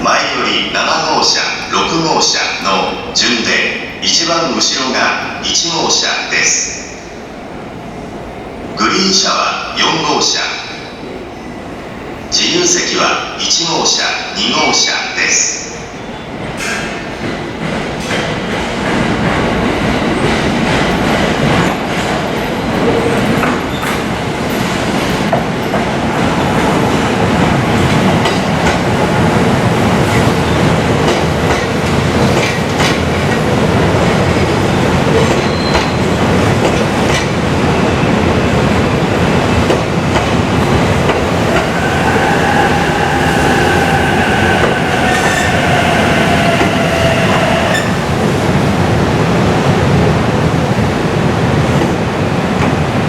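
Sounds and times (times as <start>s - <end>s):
train wheels clattering: 16.4s - 37.4s.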